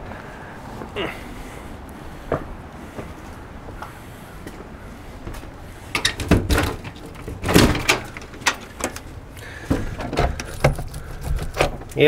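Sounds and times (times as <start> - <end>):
door latch clicks and rattles: 6.0 - 9.1.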